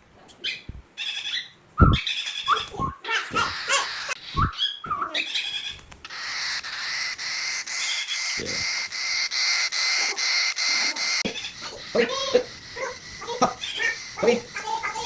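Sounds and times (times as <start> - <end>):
cockatiel chirping: 0.4 - 15.0
cockatiel raspy hissing call: 6.1 - 15.0.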